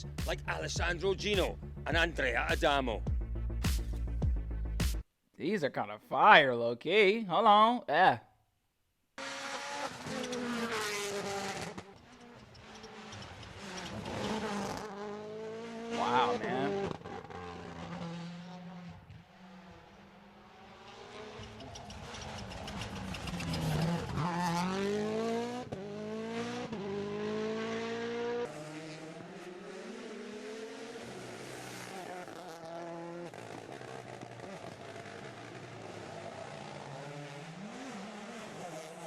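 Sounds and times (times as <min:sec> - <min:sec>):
car engine accelerating: 0:09.2 - 0:39.0.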